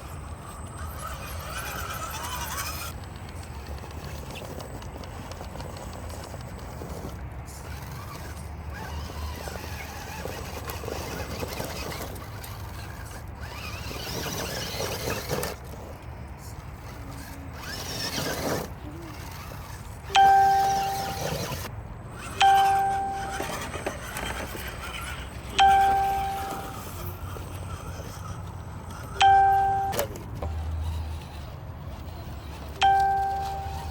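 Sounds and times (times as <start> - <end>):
bell-like ding: 22.4 - 23.4, 25.6 - 26.8, 29.2 - 30.1, 32.8 - 33.9.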